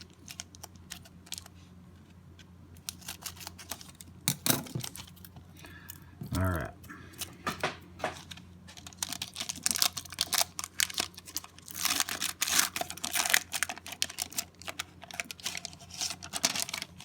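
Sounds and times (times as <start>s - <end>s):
wrapper crinkling: 0.0s - 1.6s, 2.8s - 5.4s, 8.0s - 17.0s.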